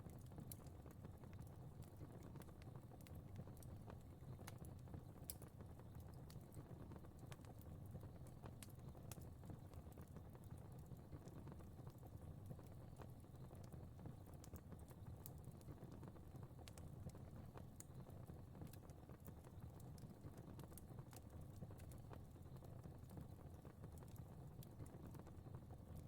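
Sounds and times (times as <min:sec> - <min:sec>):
fire popping and crackling: 0:00.0 - 0:26.0.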